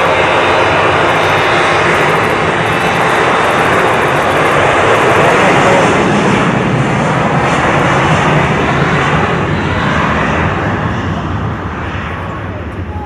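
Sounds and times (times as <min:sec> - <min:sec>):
jet engines on takeoff: 0:00.0 - 0:13.0.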